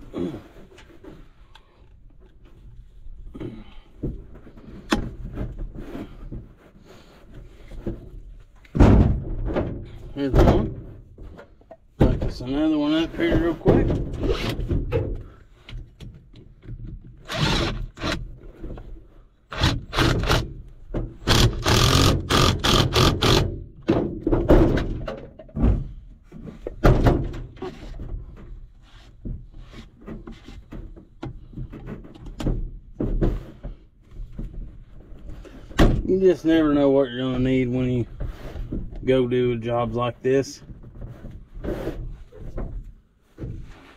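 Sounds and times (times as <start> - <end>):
plastic fittings thunking and knocking: 7.7 - 12.5, 13.2 - 17.2, 20.3 - 28.6.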